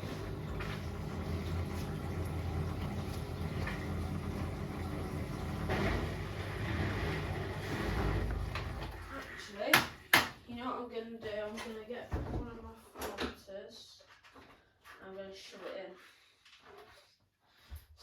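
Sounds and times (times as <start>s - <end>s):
washing machine humming: 0.0s - 9.4s.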